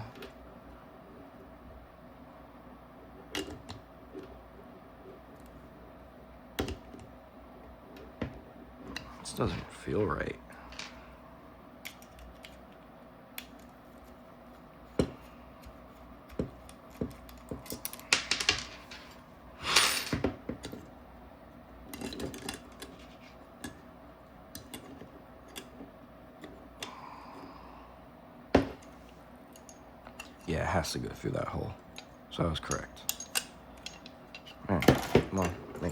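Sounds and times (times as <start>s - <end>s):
small parts clicking and tapping: 11.8s - 14.2s, 15.0s - 19.0s, 21.9s - 23.8s, 24.5s - 26.9s, 31.9s - 35.9s.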